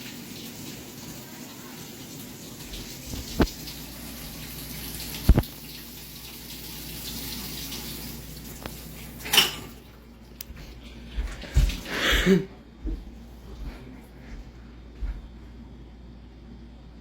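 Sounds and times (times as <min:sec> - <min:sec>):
running tap water: 0:00.0 - 0:10.0, 0:11.1 - 0:12.3.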